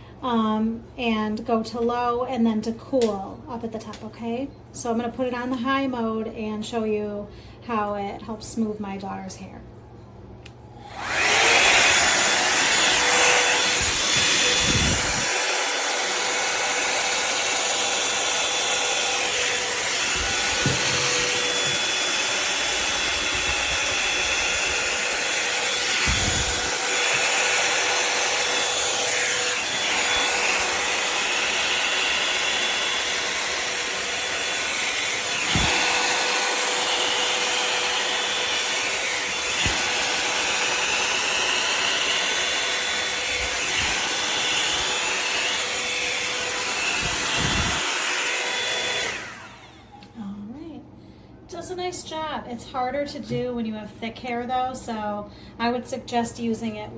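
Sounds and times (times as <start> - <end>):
hot-air dryer brush running: 10.8 - 50.1.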